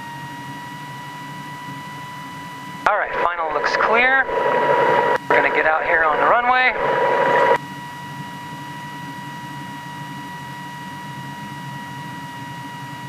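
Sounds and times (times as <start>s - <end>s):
aircraft engine rumble: 2.9s - 7.6s
high-pitched electrical whine: 2.9s - 7.6s.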